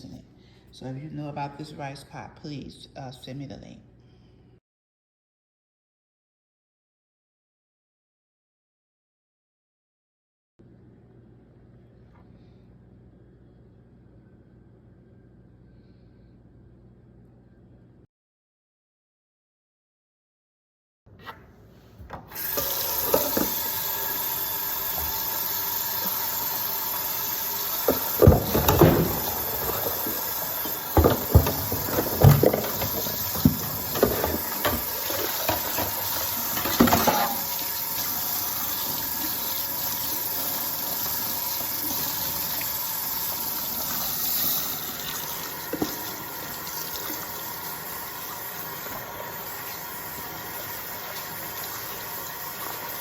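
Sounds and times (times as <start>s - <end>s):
tap water running into sink: 22.3s - 53.0s
dishes and pot clattering: 27.9s - 37.5s.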